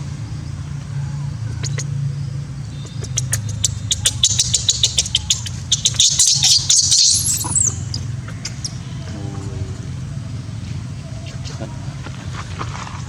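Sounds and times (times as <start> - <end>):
steady low hum: 0.0 - 13.0
baby monkey squeaking: 1.5 - 1.9, 2.7 - 9.0.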